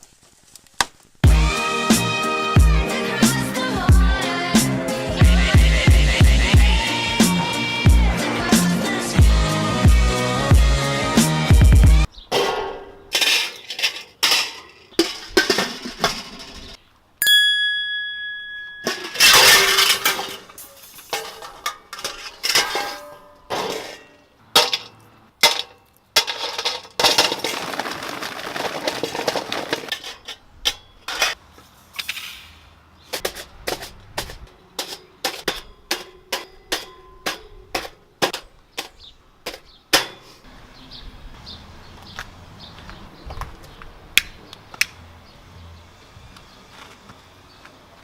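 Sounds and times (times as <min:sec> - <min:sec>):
metal objects clanking: 0:12.3 - 0:16.8, 0:18.7 - 0:31.4, 0:33.1 - 0:40.4.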